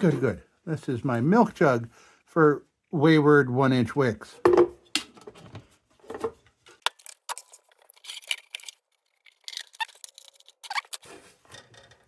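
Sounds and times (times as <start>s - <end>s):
small parts clicking and scraping: 6.7s - 12.0s.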